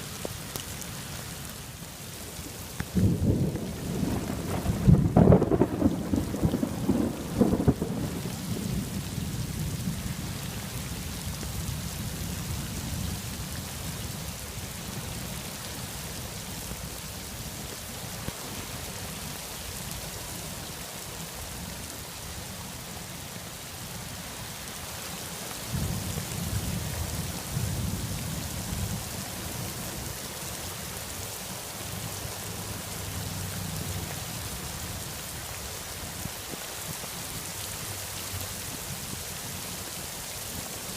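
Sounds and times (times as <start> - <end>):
heavy rain falling: 0.0 - 40.9
rolling thunder: 3.0 - 10.1.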